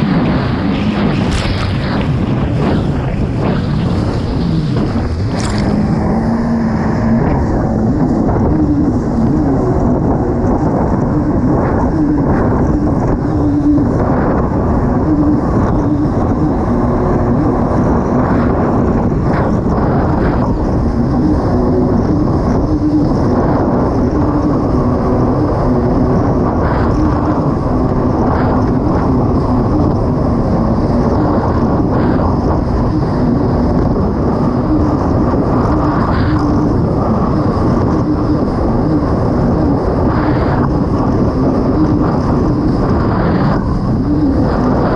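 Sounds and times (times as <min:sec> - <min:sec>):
rushing water noise: 0:00.0 - 0:12.5
jet ski engine running: 0:00.0 - 0:44.9.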